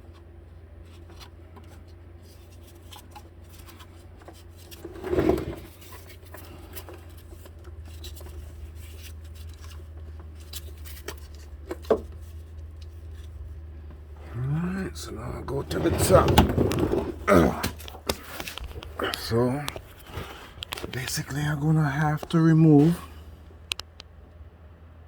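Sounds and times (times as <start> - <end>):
steady low hum: 0.0 - 25.0
hand tools clicking and scraping: 14.2 - 21.2.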